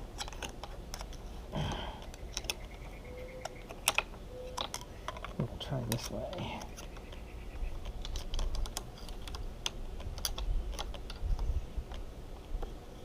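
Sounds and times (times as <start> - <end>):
tool clicking and scraping: 0.1 - 1.3, 3.4 - 12.0.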